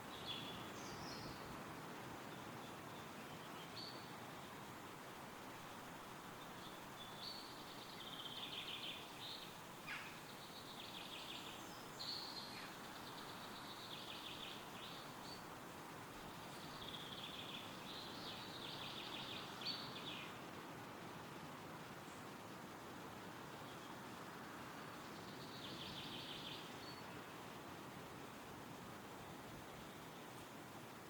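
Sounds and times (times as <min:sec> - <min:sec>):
wind through trees: 0:00.0 - 0:31.0
songbirds trilling: 0:06.3 - 0:20.4, 0:23.6 - 0:27.5.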